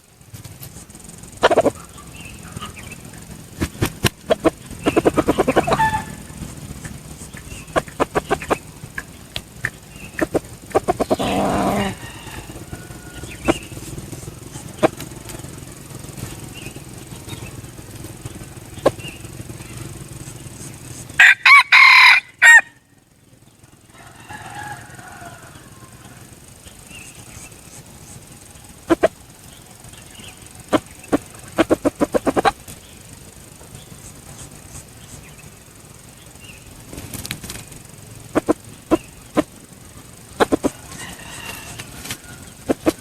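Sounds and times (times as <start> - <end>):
fast run of pulses: 0.0 - 43.0
sharp clicks: 0.3 - 12.6, 36.8 - 39.6
rooster crowing: 4.3 - 8.7, 9.9 - 15.8, 21.1 - 22.9, 23.8 - 26.6, 40.4 - 43.0.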